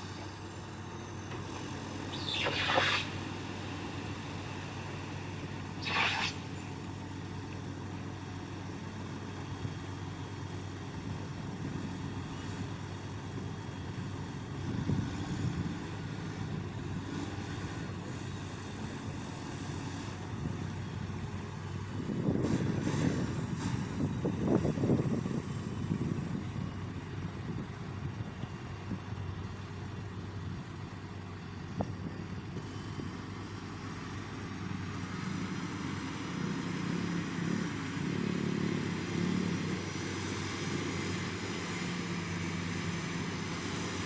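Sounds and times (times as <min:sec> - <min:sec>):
brief hiss: 0:02.1 - 0:03.7, 0:05.7 - 0:06.7.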